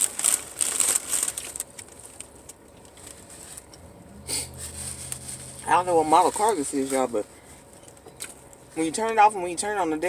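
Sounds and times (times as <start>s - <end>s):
food wrapper crinkling: 0.0s - 3.8s
car engine hum: 1.5s - 10.0s
brief rush of noise: 4.0s - 5.7s.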